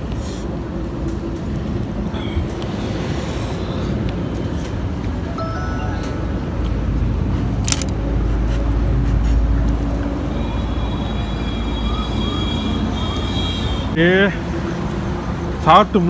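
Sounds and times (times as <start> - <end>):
highway traffic rumble: 0.0 - 16.0
sharp click: 7.6 - 8.0.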